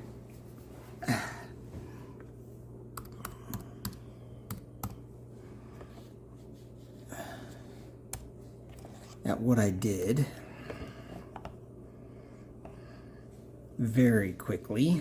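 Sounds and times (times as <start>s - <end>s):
steady low hum: 0.0s - 15.0s
keyboard and mouse clicks: 3.0s - 5.0s.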